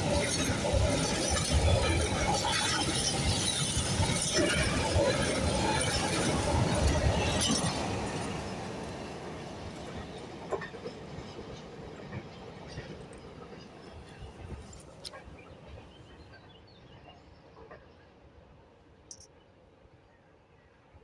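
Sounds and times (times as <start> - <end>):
freight train wagons rattling: 0.0 - 16.5.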